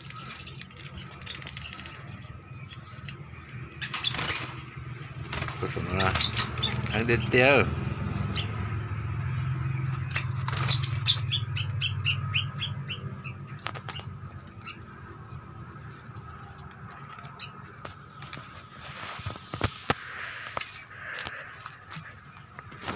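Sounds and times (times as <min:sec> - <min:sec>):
wings flapping against wire cage: 0:00.0 - 0:02.3, 0:03.6 - 0:07.3, 0:09.9 - 0:15.0, 0:15.6 - 0:20.0.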